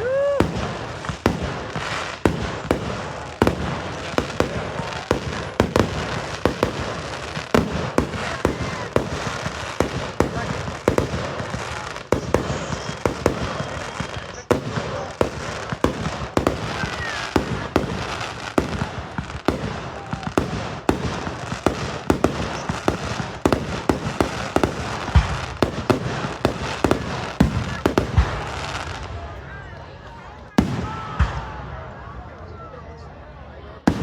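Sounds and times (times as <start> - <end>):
fireworks crackle: 0.0 - 31.6
fireworks bangs: 0.0 - 32.2, 33.8 - 34.0.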